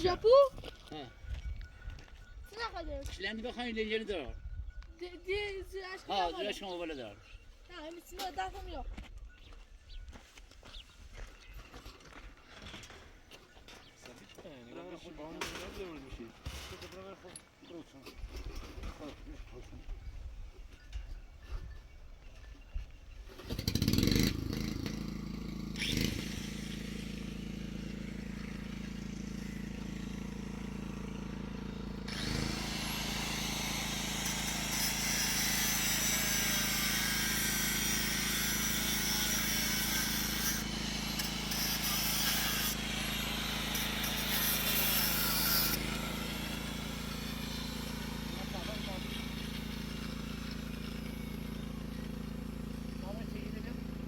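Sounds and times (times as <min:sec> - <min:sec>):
engine running: 0:23.4 - 0:54.0.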